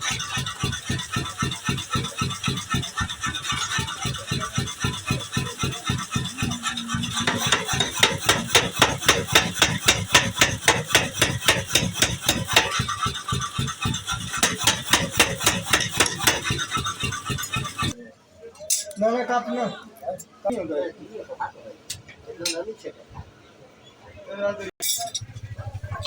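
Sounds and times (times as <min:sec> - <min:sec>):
power hammer striking steel: 0:00.0 - 0:18.0.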